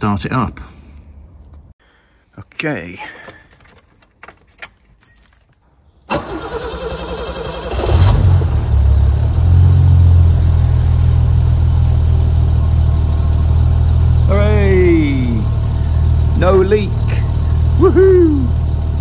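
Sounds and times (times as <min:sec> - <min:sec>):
starter motor cranking: 0:06.1 - 0:08.2
car engine running: 0:07.0 - 0:19.0.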